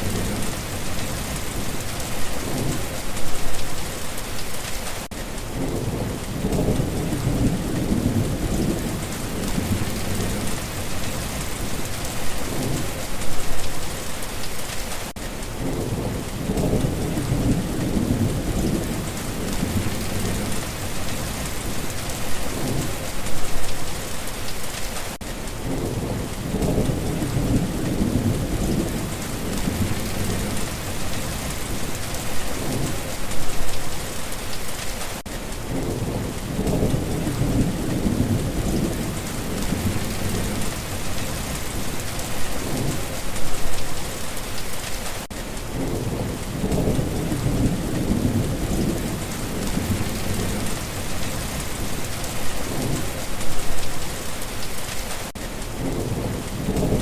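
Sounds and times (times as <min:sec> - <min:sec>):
heavy rain hissing: 0:00.0 - 0:57.0
distant thunder rolls: 0:45.7 - 0:53.8.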